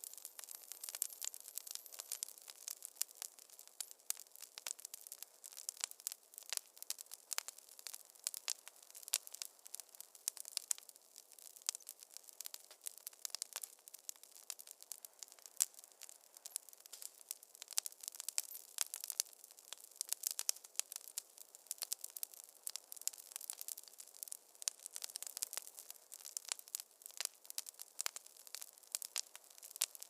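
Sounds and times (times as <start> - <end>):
faint steady hiss: 0.0 - 30.0
wood fire crackling: 0.0 - 30.0.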